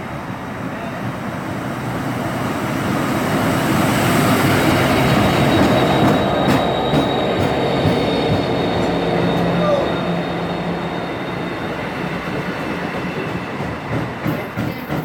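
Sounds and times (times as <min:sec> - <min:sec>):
train rumble: 0:00.0 - 0:15.0
high wheel squeal: 0:04.2 - 0:13.9.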